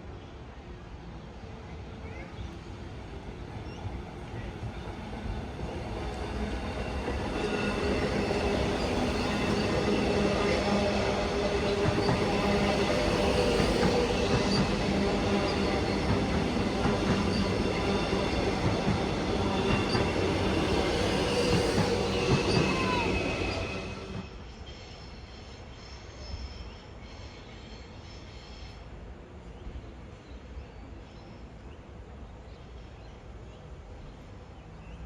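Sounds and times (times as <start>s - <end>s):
electric train running on track: 1.5s - 24.5s
train wheels squealing: 6.5s - 26.6s.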